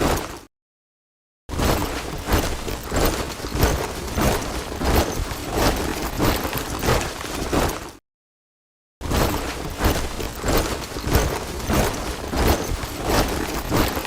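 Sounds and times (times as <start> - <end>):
soldiers marching in step: 9.4 - 14.0.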